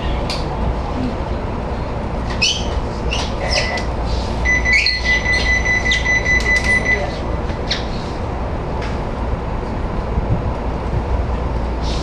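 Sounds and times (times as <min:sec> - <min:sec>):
low rumble of standing train: 0:00.0 - 0:12.0
steady high-pitched tone: 0:04.4 - 0:07.2.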